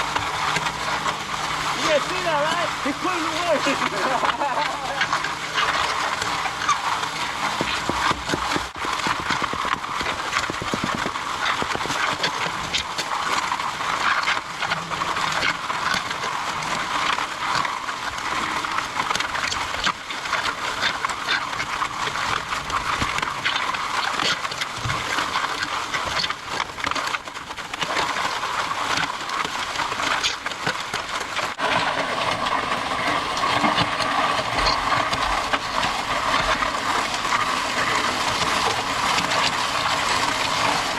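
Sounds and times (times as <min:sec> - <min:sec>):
gravel clattering: 0:00.0 - 0:12.5
concrete mixer running: 0:00.0 - 0:24.2, 0:25.1 - 0:40.9.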